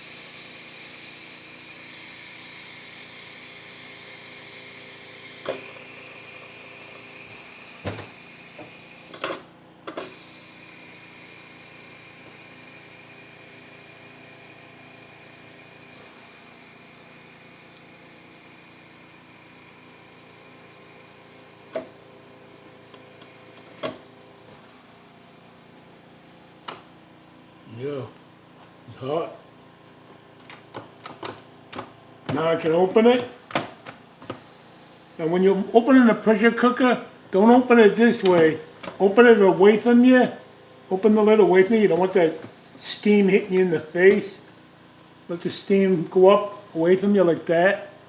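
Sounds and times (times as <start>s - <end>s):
steam hissing from valve: 0.0s - 9.2s, 10.0s - 23.7s, 34.2s - 35.4s.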